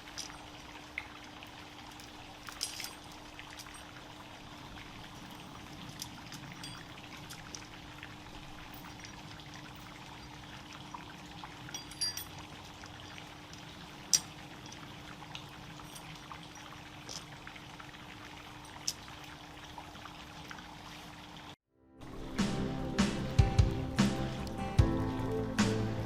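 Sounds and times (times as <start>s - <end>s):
campfire hissing and crackling: 22.1s - 26.0s.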